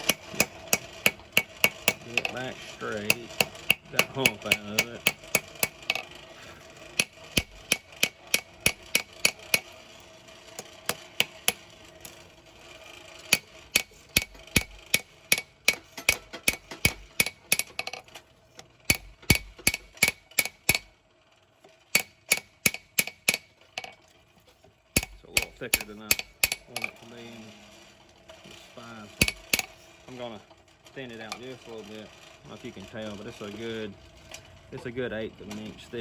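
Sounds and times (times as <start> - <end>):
hammer striking metal on anvil: 0.0 - 6.0, 7.0 - 9.8, 10.9 - 11.6, 13.3 - 17.9, 18.9 - 20.9, 22.0 - 23.9, 25.0 - 27.0, 29.1 - 29.8.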